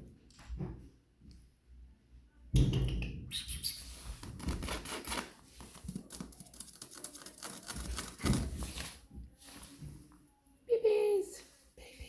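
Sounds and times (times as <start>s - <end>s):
rustling: 3.8s - 10.3s.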